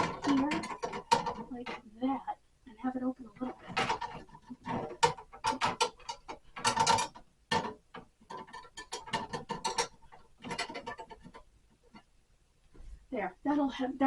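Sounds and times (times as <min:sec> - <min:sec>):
knife rattling against freezer door: 0:00.0 - 0:01.8, 0:03.3 - 0:11.4.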